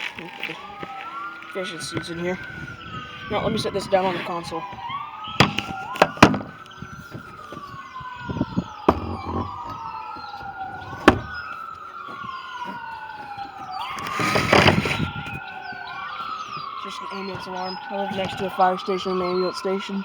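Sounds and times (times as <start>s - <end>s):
ambulance siren wailing: 0.0s - 20.0s
sharp knocks: 5.4s - 6.5s, 8.9s - 9.9s, 10.7s - 11.4s.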